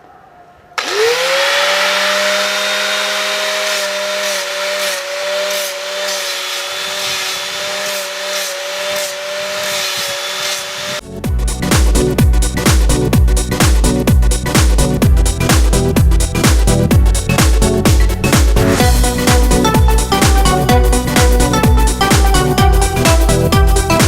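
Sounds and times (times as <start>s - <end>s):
electric power tool whining: 0.8s - 11.0s
electronic dance music: 2.1s - 24.0s.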